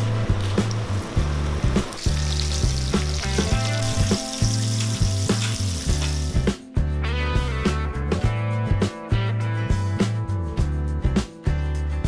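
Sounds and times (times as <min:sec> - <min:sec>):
chicken deep-frying in oil: 0:00.0 - 0:06.5
background music with beat: 0:00.0 - 0:12.0.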